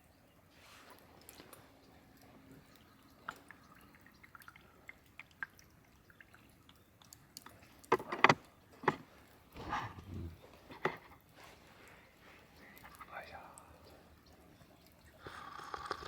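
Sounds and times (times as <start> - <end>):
light drips and ticks: 0.0 - 16.0
camp gear knocking and clattering: 7.9 - 11.1.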